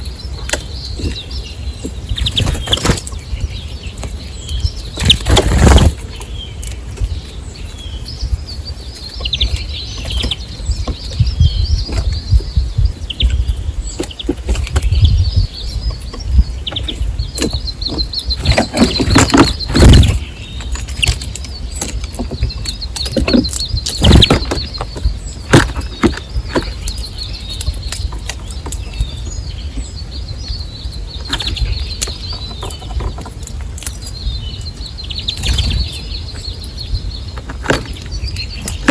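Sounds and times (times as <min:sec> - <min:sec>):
small birds chirping: 0:00.0 - 0:38.9
wings fluttering: 0:01.9 - 0:03.2, 0:04.9 - 0:06.2, 0:16.8 - 0:27.0, 0:35.3 - 0:36.4.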